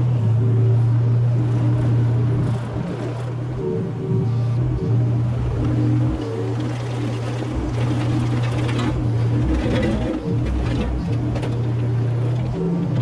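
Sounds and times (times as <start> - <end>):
excavator diesel engine running: 0.0 - 13.0
debris scraping and clattering: 6.6 - 12.5.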